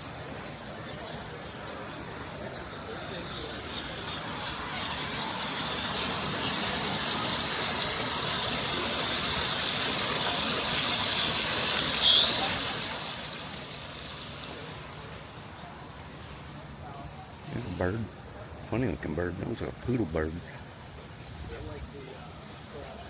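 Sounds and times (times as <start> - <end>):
high hiss: 0.0 - 23.0
sharp high chirp: 12.0 - 12.6.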